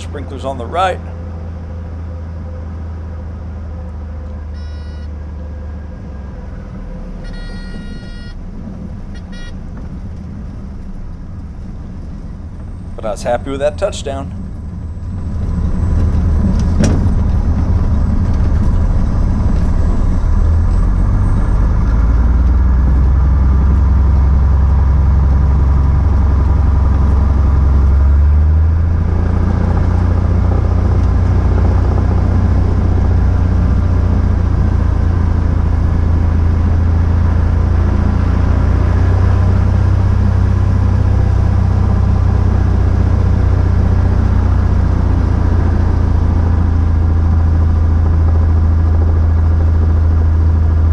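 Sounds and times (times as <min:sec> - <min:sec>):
piston aircraft engine drone: 0:00.0 - 0:50.9.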